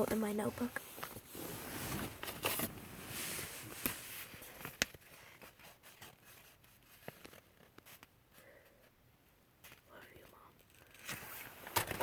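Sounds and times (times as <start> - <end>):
notebook pages rustling: 0.0 - 8.6, 9.6 - 12.0.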